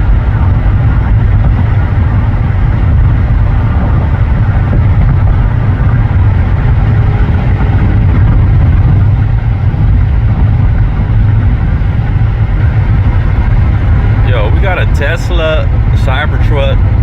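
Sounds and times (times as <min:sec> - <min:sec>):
car tyre and wind rumble: 0:00.0 - 0:17.0.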